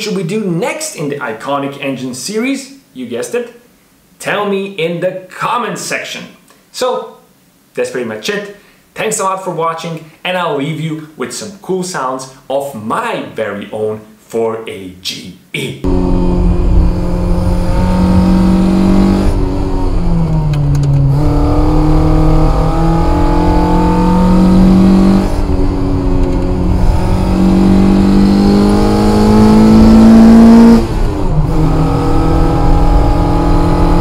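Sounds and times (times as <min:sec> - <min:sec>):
car engine revving: 0:15.8 - 0:34.0.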